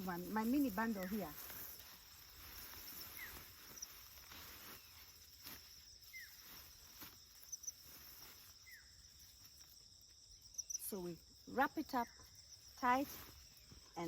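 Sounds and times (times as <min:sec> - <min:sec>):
soft rustles: 0:00.0 - 0:09.8
insects chirring: 0:00.0 - 0:14.0.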